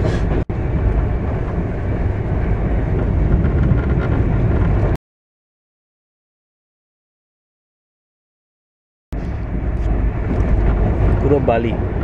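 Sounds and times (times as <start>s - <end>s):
train wheels rumbling on rails: 0.0s - 5.0s, 9.2s - 12.0s.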